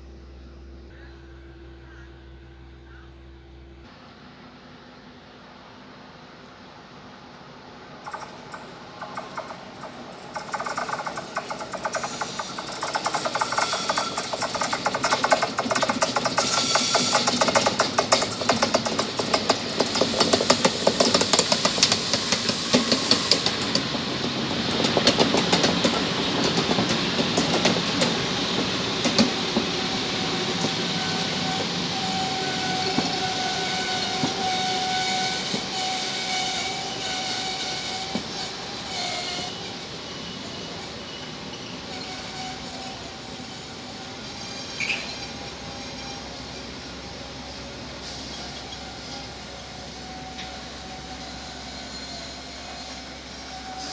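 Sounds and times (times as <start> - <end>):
train wheel clatter: 8.0 - 51.1
traction equipment whine: 8.0 - 53.9.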